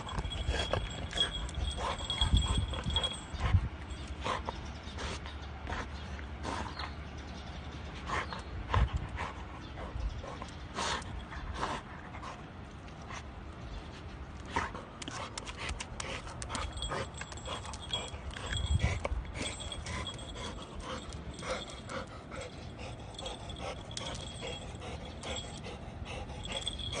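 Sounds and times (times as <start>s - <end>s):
dog panting: 0.0s - 7.1s, 13.9s - 27.0s
dog gnawing rubber toy: 15.0s - 21.9s.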